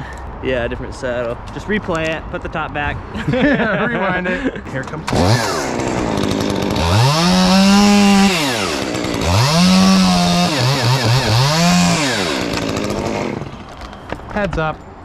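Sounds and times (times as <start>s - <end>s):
chainsaw revving: 5.0s - 13.8s.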